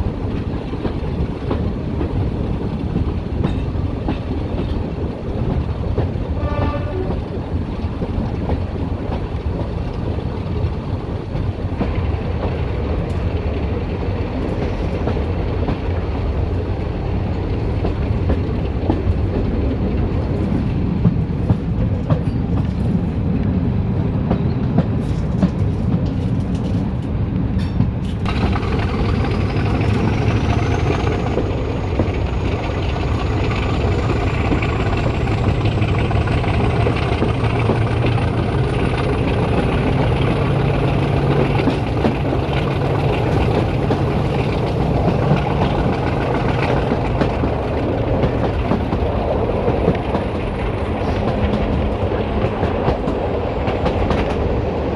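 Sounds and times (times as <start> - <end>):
diesel train engine drone: 0.0 - 54.9
wheels clicking over rail joints: 24.3 - 54.6.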